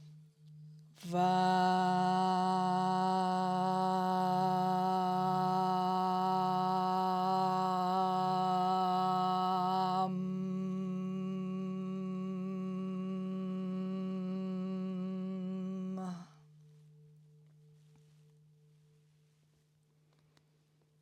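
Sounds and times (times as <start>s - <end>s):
woman chanting: 1.0s - 16.4s.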